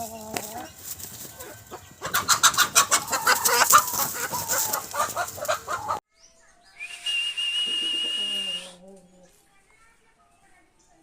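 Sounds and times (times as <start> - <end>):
wing flapping rustle: 0.0 - 2.0, 3.3 - 5.7
chickens clucking: 0.0 - 6.0, 7.7 - 9.5.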